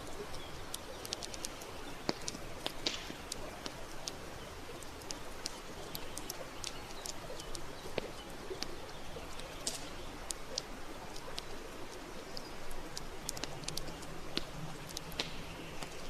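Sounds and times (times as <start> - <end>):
campfire crackling and popping: 0.0 - 16.0
fire hissing: 7.9 - 16.0.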